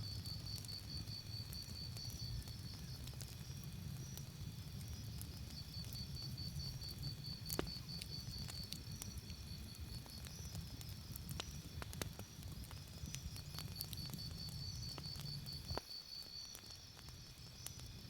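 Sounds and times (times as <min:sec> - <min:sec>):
campfire crackling and popping: 0:00.0 - 0:18.0
crickets chirping: 0:00.0 - 0:18.0.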